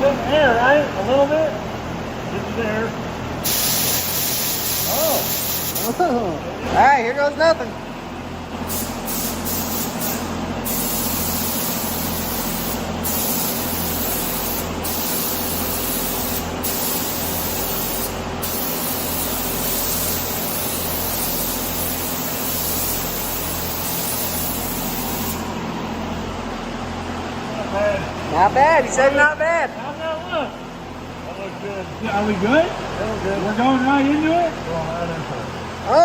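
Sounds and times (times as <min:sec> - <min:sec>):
steady low hum: 0:00.0 - 0:36.0
paint spray gun hissing: 0:03.4 - 0:06.0, 0:08.7 - 0:25.6.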